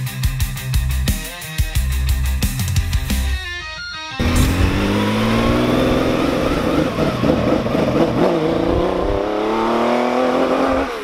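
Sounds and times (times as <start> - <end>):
car engine accelerating: 4.2 - 11.0.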